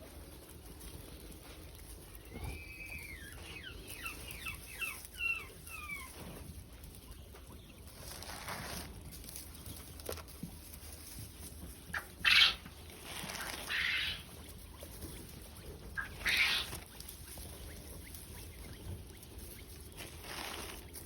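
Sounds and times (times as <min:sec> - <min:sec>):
quail calling: 0:02.1 - 0:06.4, 0:11.9 - 0:20.8.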